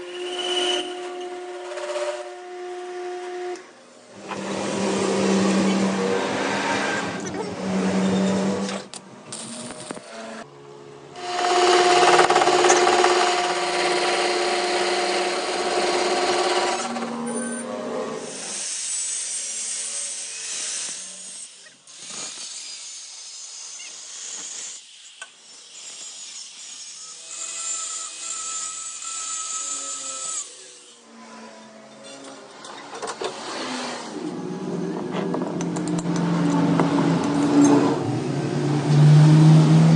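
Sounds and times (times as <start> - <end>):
power tool working metal: 0.0 - 10.5, 11.2 - 39.9
engine droning: 34.2 - 39.9.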